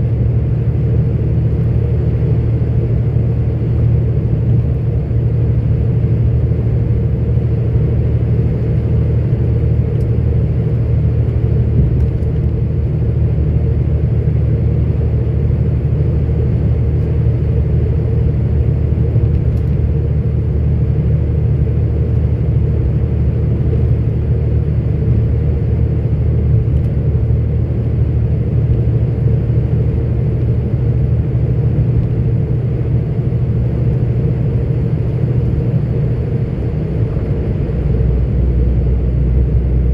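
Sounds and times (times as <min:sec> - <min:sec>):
truck diesel engine rumble: 0:00.0 - 0:39.9.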